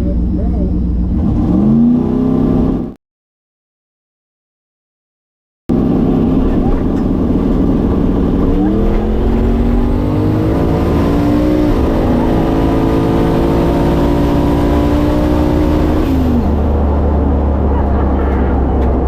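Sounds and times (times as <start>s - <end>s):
drag car engine at full throttle: 0.0s - 3.0s, 5.7s - 19.0s.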